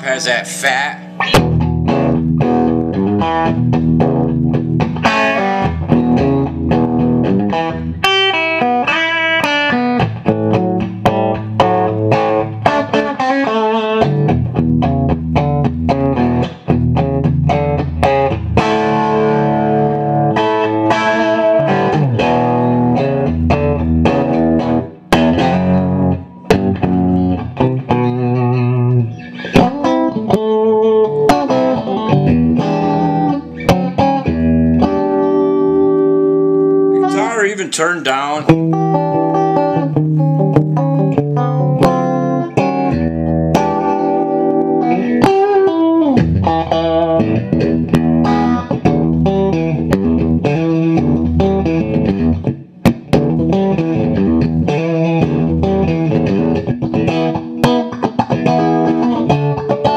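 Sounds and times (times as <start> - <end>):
electric guitar playing: 0.0 - 59.9.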